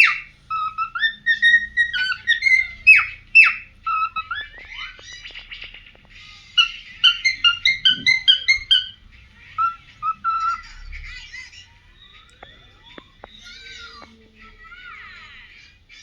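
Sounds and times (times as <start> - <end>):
cockatiel whistling and warbling: 0.0 - 11.3.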